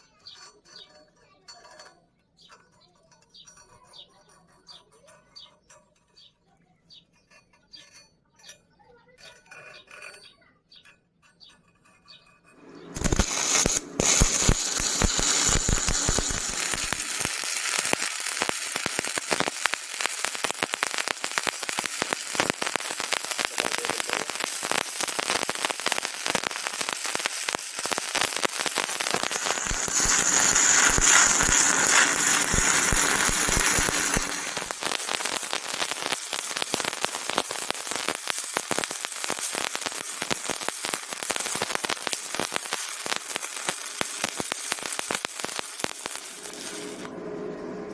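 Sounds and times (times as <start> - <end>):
welding arc crackling: 12.6 - 47.1.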